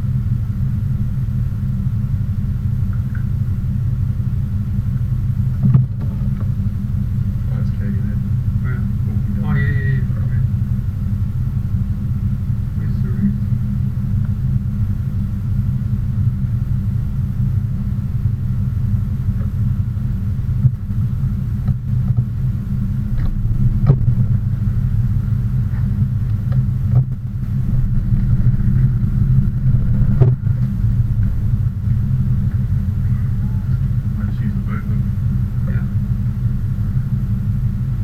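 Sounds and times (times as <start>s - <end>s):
car interior rumble: 0.0s - 38.0s
faint knocks: 23.2s - 24.9s.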